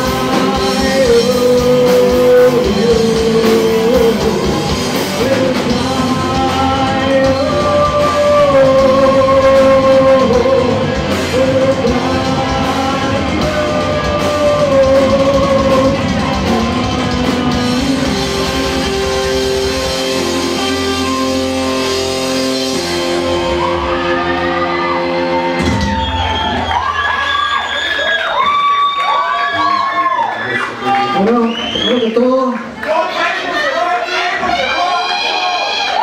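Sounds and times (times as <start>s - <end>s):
person singing: 0.0s - 22.1s
rock band playing live: 0.0s - 27.8s.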